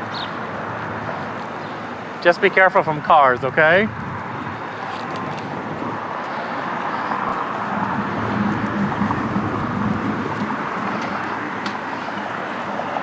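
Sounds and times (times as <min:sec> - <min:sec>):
car engine and tyres: 0:00.0 - 0:13.0.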